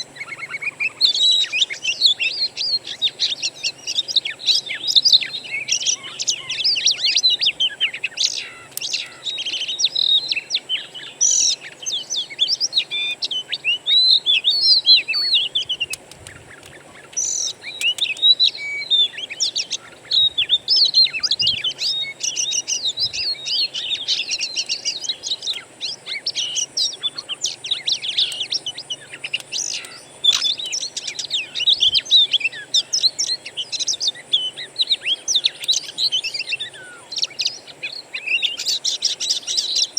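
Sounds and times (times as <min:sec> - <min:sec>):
magpie-robin song: 0:00.0 - 0:39.9.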